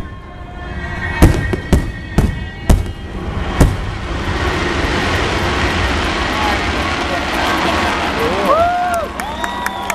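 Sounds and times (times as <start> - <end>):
firework shells bursting: 1.2 - 6.2.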